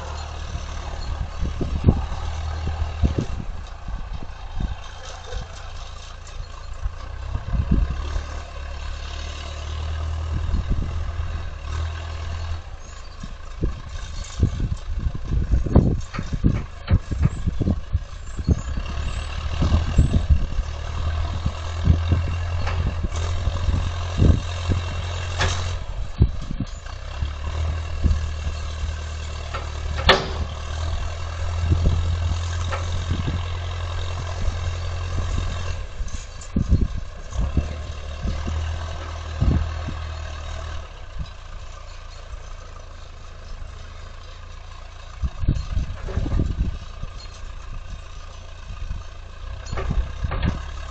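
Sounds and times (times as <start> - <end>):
heavy equipment engine droning: 0.0 - 50.9
knocks and clanks: 15.7 - 17.8, 21.2 - 26.8, 27.5 - 42.3, 45.4 - 47.4, 49.6 - 50.9.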